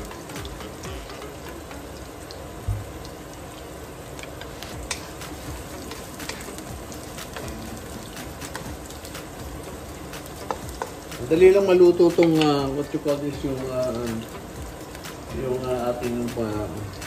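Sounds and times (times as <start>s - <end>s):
vegetables sizzling in oil: 0.0s - 17.0s
wooden spatula clicking: 10.3s - 11.3s.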